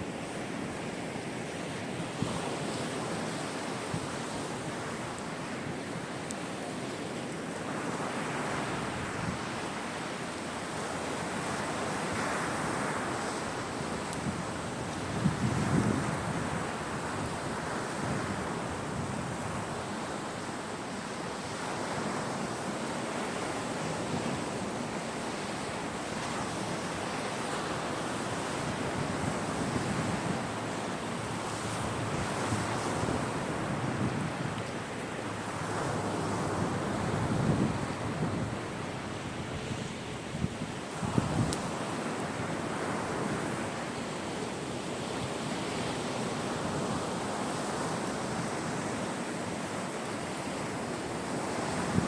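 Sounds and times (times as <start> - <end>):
sea surf washing ashore: 0.0 - 52.0
wind buffeting microphone: 13.1 - 20.0, 25.8 - 43.6.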